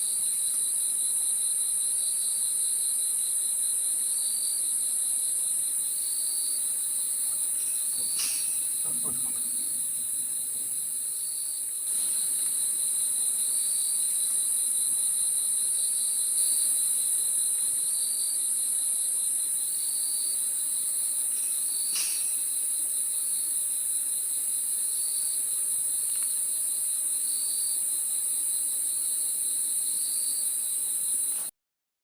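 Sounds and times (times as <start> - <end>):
insects trilling: 0.0 - 31.5
low insect chirp: 0.0 - 31.5
brief click: 8.0 - 9.6, 21.9 - 22.4.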